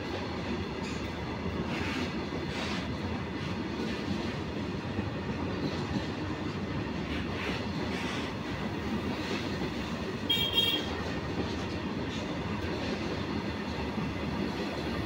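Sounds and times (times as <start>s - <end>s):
freight train rumbling past: 0.0s - 15.0s.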